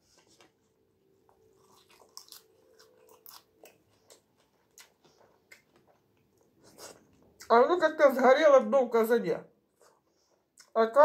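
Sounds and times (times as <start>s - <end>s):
person chewing with wet mouth clicks: 1.7s - 7.5s.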